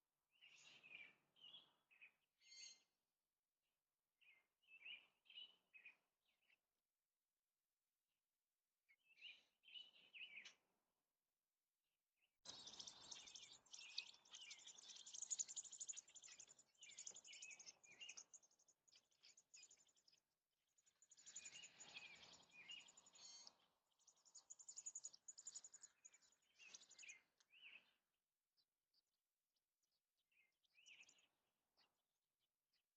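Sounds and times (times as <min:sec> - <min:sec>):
birds chirping: 0:00.4 - 0:02.8, 0:04.3 - 0:06.6, 0:09.0 - 0:10.6, 0:12.5 - 0:28.0, 0:30.3 - 0:31.9.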